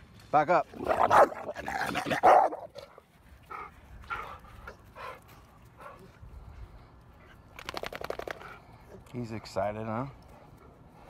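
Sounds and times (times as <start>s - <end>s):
dogs grumbling and whining: 0.7s - 2.9s.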